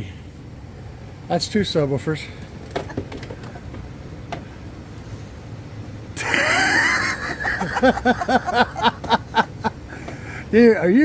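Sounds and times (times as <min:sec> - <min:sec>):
person laughing loudly: 0:06.2 - 0:09.9.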